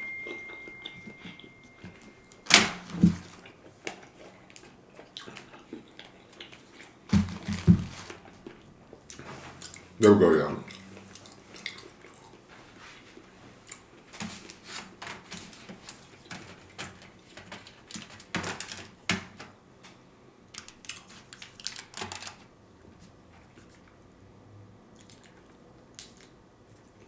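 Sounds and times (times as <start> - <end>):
close-up chewing: 3.2 - 10.0, 10.6 - 14.6, 24.9 - 27.0.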